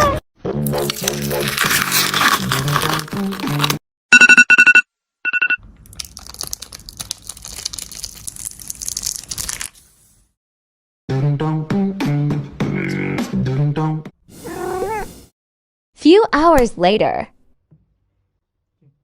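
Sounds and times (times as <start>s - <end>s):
music: 0.4s - 3.8s, 11.1s - 14.2s
crinkling rustling noise: 0.8s - 3.8s, 5.9s - 9.8s.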